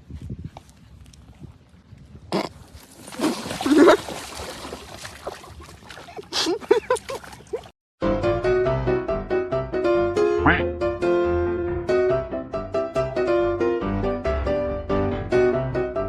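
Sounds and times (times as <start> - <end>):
piano music: 8.0 - 16.0.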